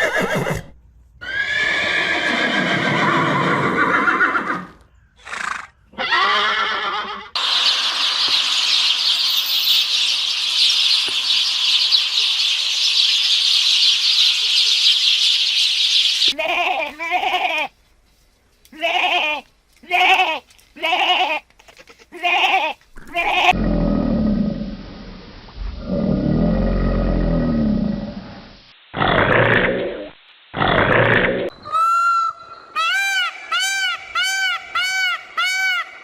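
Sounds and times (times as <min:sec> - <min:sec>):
horse neighing: 0:00.0 - 0:07.4
high-pitched rasping hiss: 0:07.4 - 0:16.4.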